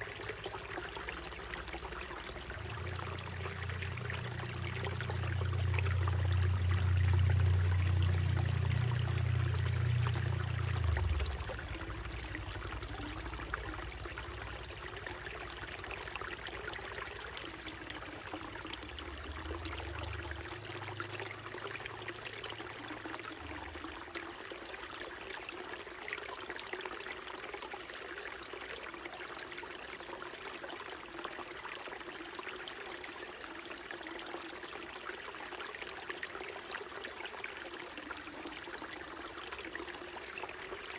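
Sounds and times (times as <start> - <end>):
stream trickling and splashing: 0.0 - 40.9
low rumble: 1.5 - 21.5.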